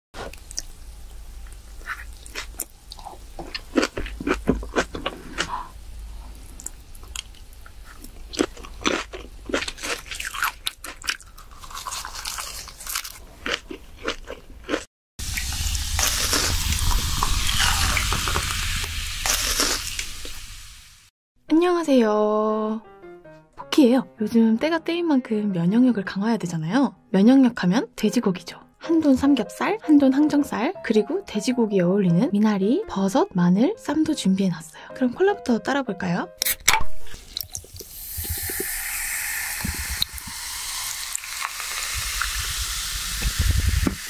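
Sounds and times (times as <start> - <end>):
crunchy bites and wet chewing: 1.4 - 5.8, 6.5 - 18.2, 19.3 - 19.9.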